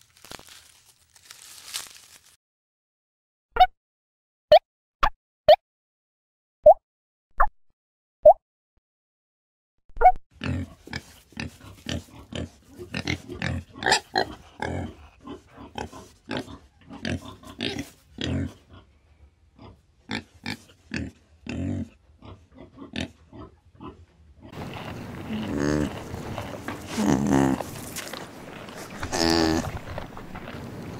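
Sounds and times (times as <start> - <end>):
pigs grunting: 10.4 - 18.9, 19.6 - 30.9.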